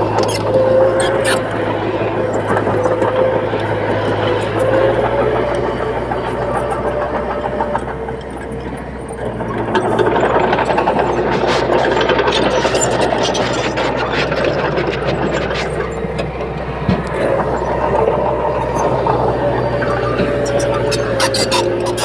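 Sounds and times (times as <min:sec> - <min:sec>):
diesel engine drone: 0:00.0 - 0:22.0
machine rattling clatter: 0:00.0 - 0:22.0.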